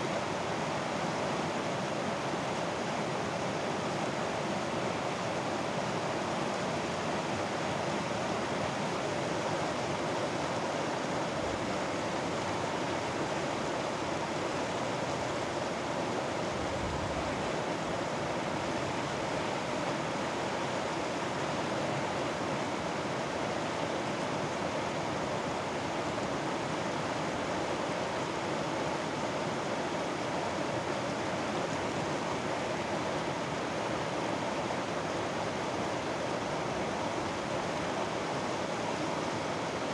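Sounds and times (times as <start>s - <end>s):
stream flowing: 17.3s - 39.9s.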